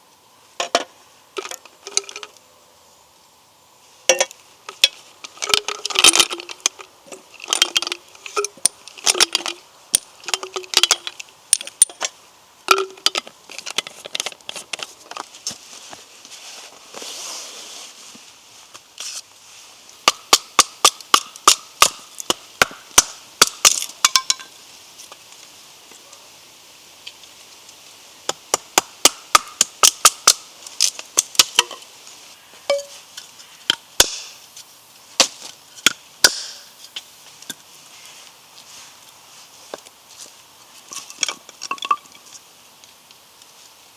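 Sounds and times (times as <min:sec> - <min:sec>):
soft rustle: 0:13.2 - 0:20.0, 0:31.8 - 0:33.7, 0:36.7 - 0:41.5, 0:42.1 - 0:43.9
wood chopping strikes: 0:20.0 - 0:24.4, 0:28.3 - 0:31.8, 0:33.7 - 0:34.4, 0:35.2 - 0:36.8.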